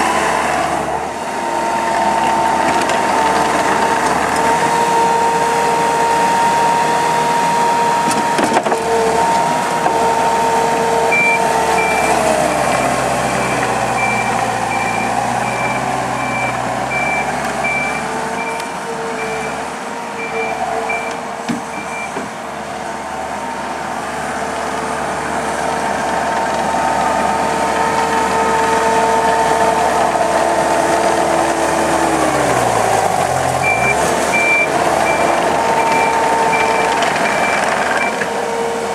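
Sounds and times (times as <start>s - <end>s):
diesel engine running: 0.0s - 38.9s
hydraulic whine: 0.0s - 38.9s
reversing alarm beeps: 11.1s - 19.6s, 20.2s - 22.2s, 33.6s - 38.2s.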